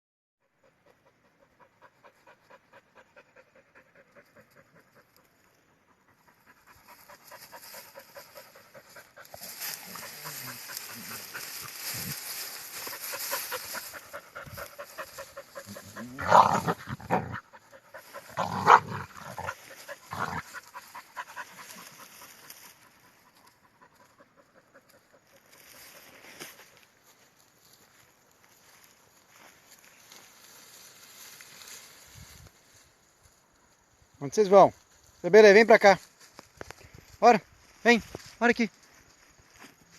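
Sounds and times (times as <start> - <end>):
animal calls: 0.4 - 26.2
animal panting: 0.5 - 26.5.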